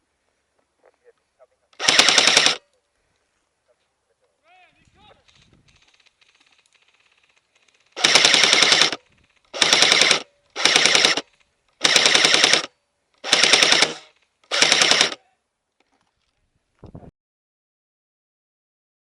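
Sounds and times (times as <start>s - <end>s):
airsoft gun firing bursts: 1.8s - 2.6s, 6.8s - 15.2s.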